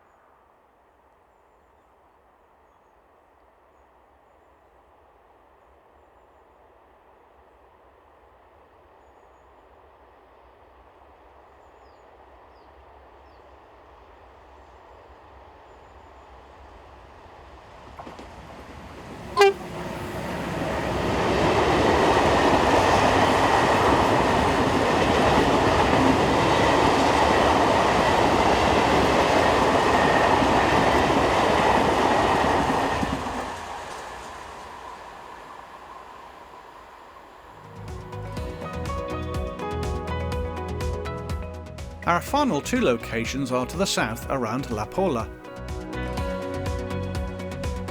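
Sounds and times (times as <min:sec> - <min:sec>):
freight train rumbling past: 0:16.7 - 0:40.2
train horn toot: 0:19.4 - 0:20.2.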